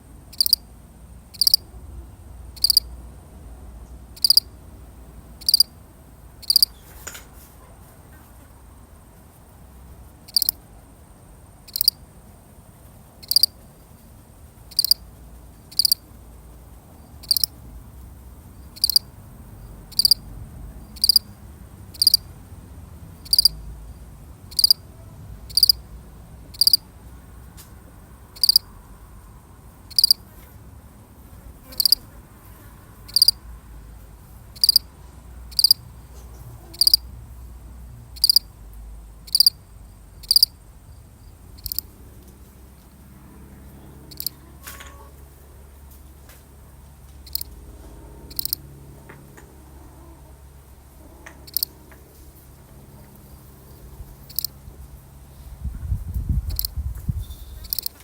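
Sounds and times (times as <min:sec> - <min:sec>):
cricket chirping: 0:00.0 - 0:07.2, 0:08.8 - 0:45.9, 0:46.7 - 0:49.2, 0:50.0 - 0:52.0, 0:52.8 - 0:55.3, 0:56.1 - 0:58.0.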